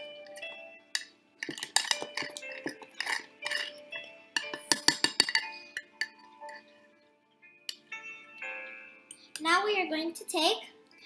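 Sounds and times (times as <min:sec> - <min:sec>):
background music: 0:00.0 - 0:11.0
cutlery clinking against a mug: 0:00.3 - 0:06.7.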